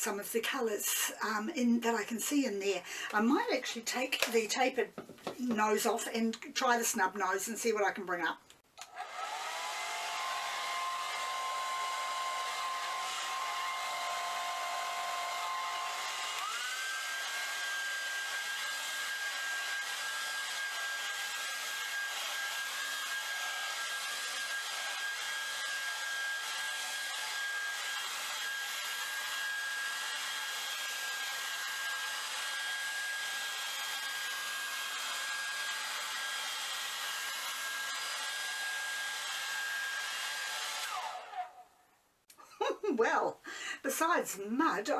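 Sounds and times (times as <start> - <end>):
blow dryer running: 8.8 - 41.6.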